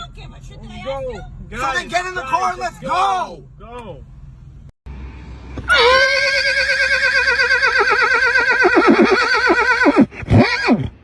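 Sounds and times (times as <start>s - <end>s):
horse-like whinny: 5.7s - 11.0s.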